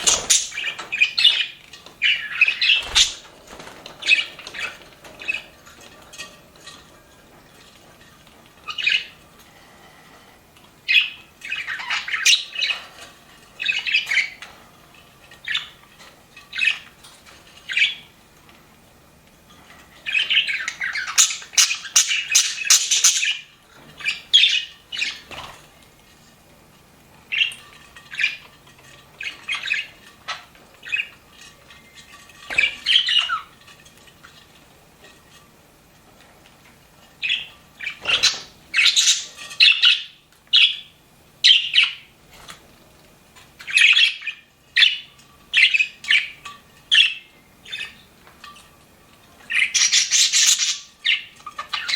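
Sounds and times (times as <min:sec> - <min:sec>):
budgerigars chirping: 0:00.0 - 0:03.2, 0:10.9 - 0:12.8, 0:20.1 - 0:25.3, 0:32.6 - 0:33.5, 0:37.2 - 0:42.1, 0:43.6 - 0:48.0, 0:49.5 - 0:51.9.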